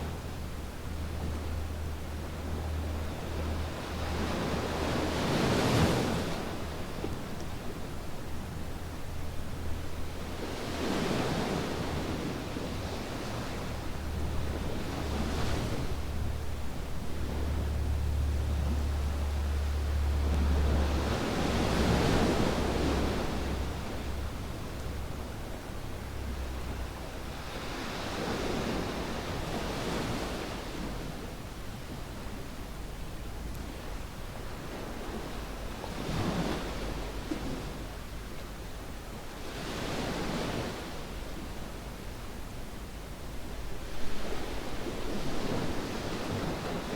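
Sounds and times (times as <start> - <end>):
ocean waves breaking: 9.4 - 31.3
low rumble: 13.6 - 27.5.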